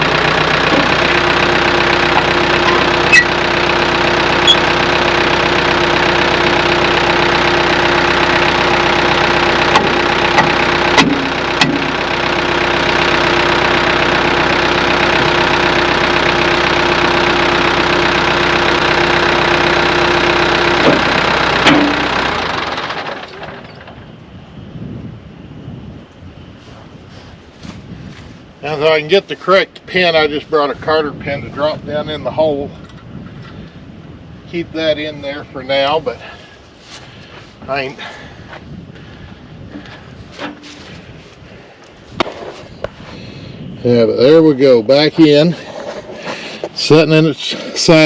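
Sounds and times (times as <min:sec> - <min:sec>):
steady whine: 0:00.0 - 0:48.0
tractor diesel engine running: 0:00.0 - 0:48.0
sharp clicks and knocks: 0:09.6 - 0:12.0, 0:20.8 - 0:24.0.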